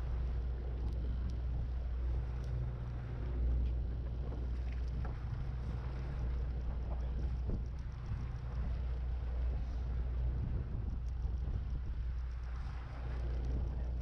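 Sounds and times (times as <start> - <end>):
boat engine droning: 0.0 - 14.0
faint clicks: 2.4 - 2.6, 6.4 - 9.0, 10.8 - 14.0.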